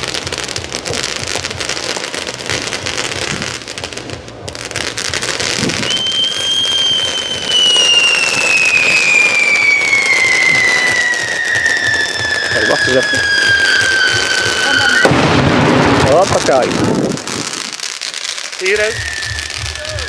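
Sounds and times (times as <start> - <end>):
fireworks crackling: 0.0 - 20.0
firework whistle sliding down: 5.6 - 15.1, 18.6 - 20.0.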